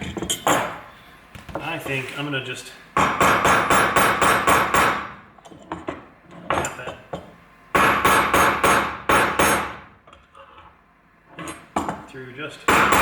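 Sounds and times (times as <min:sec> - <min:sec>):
hammer striking metal: 0:03.0 - 0:05.2, 0:07.8 - 0:09.8, 0:12.7 - 0:13.0.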